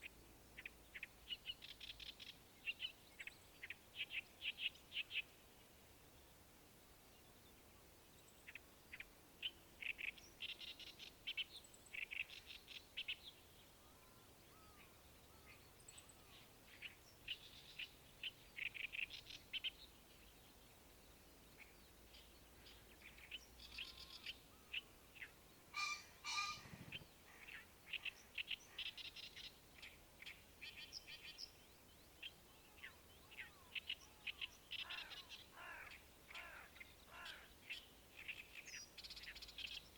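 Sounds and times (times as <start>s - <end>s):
birds chirping: 11.9s - 39.9s
louder bird call: 25.7s - 27.0s.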